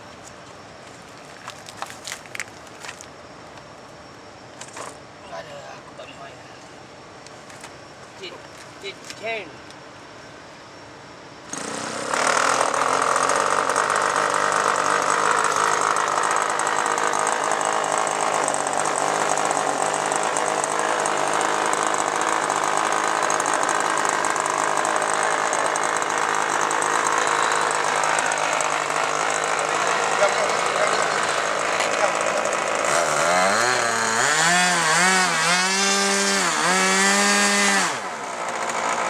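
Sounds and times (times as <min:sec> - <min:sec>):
model aircraft engine buzzing: 0:11.5 - 0:39.0.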